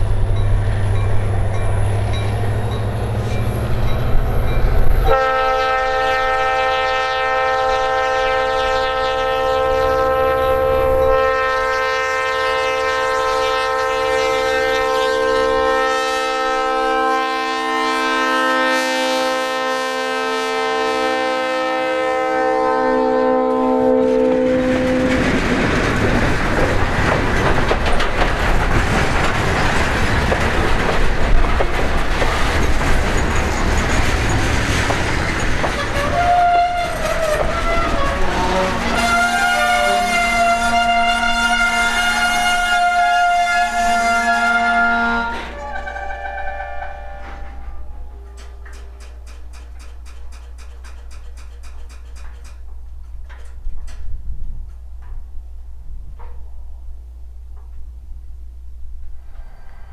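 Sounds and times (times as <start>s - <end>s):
locomotive air horn blast: 5.0s - 25.1s, 35.8s - 48.6s
train wheels clattering on rails: 23.4s - 42.9s, 47.0s - 56.6s.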